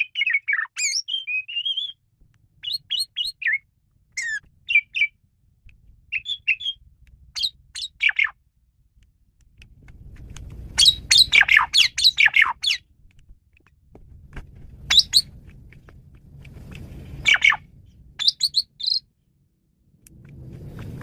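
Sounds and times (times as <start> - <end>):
starling singing whistles: 0.0 - 2.0, 2.6 - 5.2, 6.1 - 6.8, 7.4 - 8.4, 10.8 - 12.8, 14.9 - 15.3, 17.2 - 19.1
low rumble: 8.4 - 21.0.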